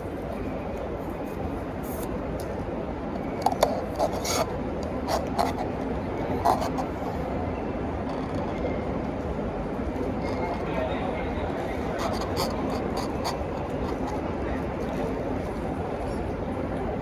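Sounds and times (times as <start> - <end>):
steady background hum: 0.0 - 17.0
rubbing and scraping: 3.6 - 7.0, 11.8 - 14.2.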